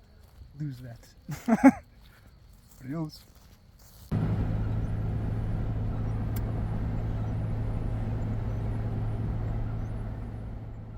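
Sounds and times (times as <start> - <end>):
car engine running: 4.1 - 10.9
road rumble: 4.1 - 10.9.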